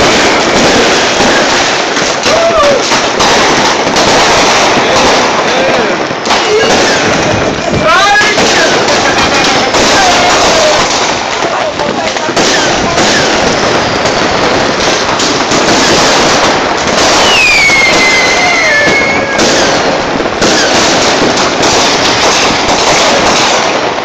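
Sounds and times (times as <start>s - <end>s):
fireworks bangs and crackling: 0.0s - 24.0s
firework whistle: 17.0s - 19.8s.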